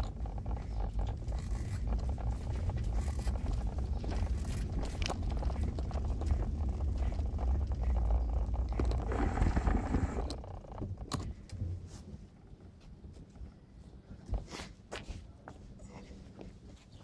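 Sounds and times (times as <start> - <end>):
road vehicle rumbling: 0.0 - 12.0.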